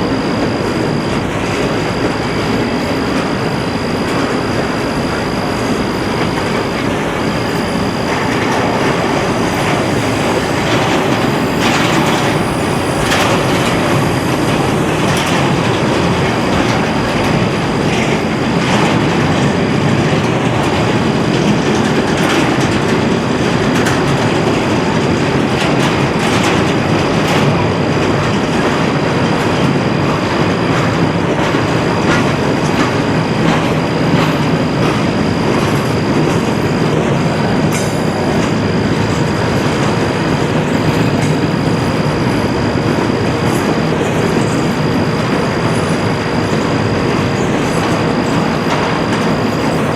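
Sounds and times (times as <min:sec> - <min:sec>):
thin high whine: 0:00.0 - 0:20.3
train wheels rumbling on rails: 0:00.0 - 0:49.9.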